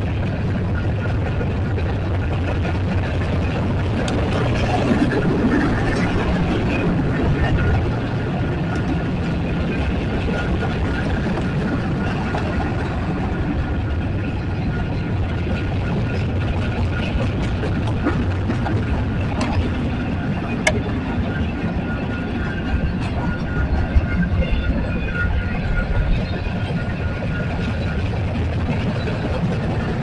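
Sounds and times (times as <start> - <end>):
heavy engine rumble: 0.0 - 30.0.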